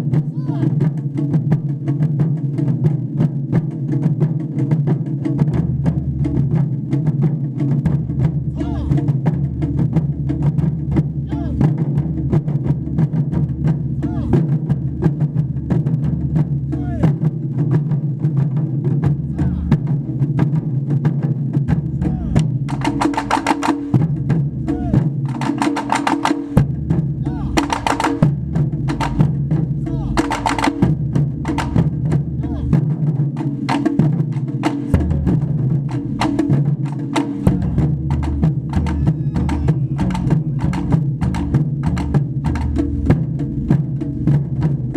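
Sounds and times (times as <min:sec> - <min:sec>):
taiko drums playing: 0:00.0 - 0:44.9
players shouting: 0:00.4 - 0:00.7, 0:08.6 - 0:08.9, 0:11.3 - 0:11.6, 0:14.0 - 0:14.3, 0:22.1 - 0:22.4, 0:24.7 - 0:25.0, 0:27.2 - 0:27.6, 0:38.8 - 0:40.7
held low notes: 0:34.9 - 0:36.5, 0:37.4 - 0:43.8.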